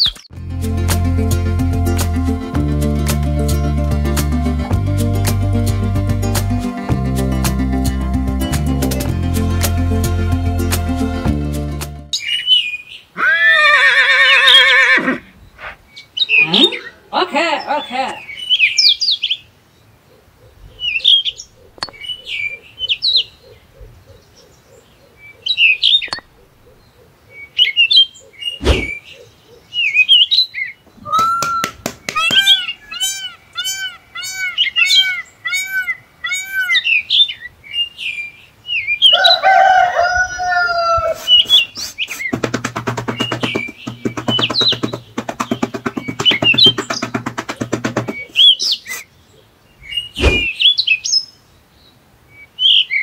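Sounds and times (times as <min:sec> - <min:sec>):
birds chirping: 0:12.1 - 0:53.0
repeated rising and falling bird calls: 0:12.1 - 0:53.0
bird call with falling pitch: 0:30.0 - 0:37.3, 0:38.9 - 0:49.0
sharp knocks: 0:31.2 - 0:32.6, 0:42.4 - 0:48.4, 0:50.2 - 0:50.5.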